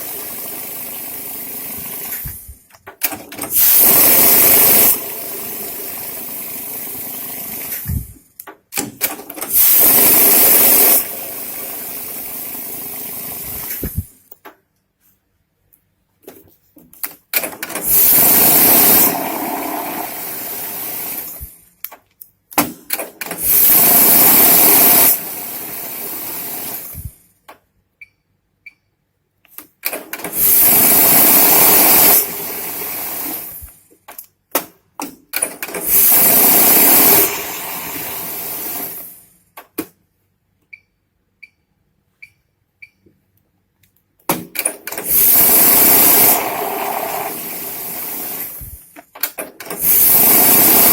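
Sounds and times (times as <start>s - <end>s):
banknote counting machine whirring: 3.0s - 7.8s, 17.4s - 21.4s, 23.2s - 26.9s, 30.2s - 33.6s, 35.4s - 39.2s, 44.6s - 48.6s, 49.6s - 50.9s
machine clicks: 17.0s - 19.2s, 34.1s - 37.3s, 44.2s - 47.3s.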